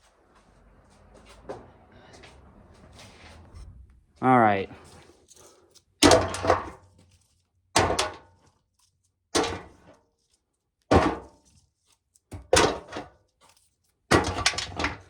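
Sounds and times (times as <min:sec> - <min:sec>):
corn ears landing in tub: 0:06.0 - 0:06.8, 0:07.8 - 0:08.3, 0:10.9 - 0:11.3.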